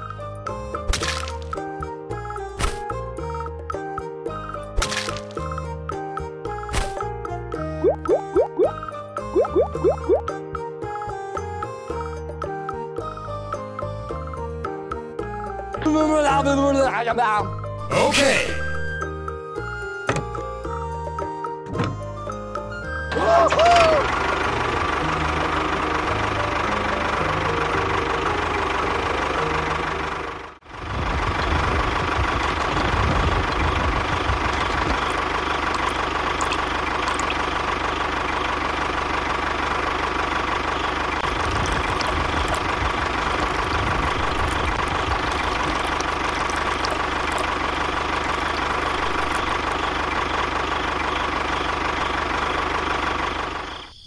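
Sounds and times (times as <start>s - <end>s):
engine running with whine: 19.6s - 54.0s.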